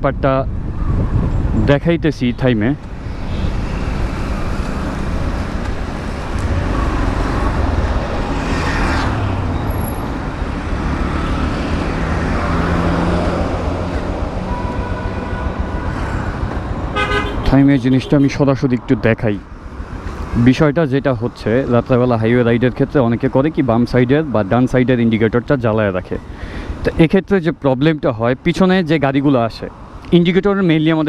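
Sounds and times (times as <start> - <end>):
road traffic rumble: 0.0 - 31.0
vehicle passing close: 2.9 - 17.0.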